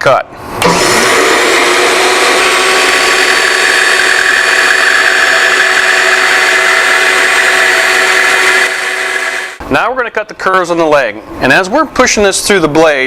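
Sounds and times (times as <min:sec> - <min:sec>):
bandsaw cutting wood: 0:00.6 - 0:09.6.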